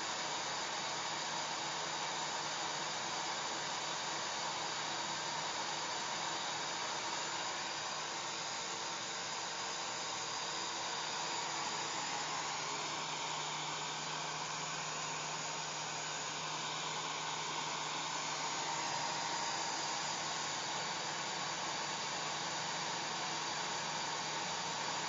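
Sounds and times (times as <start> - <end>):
hair dryer running: 0.0 - 25.0.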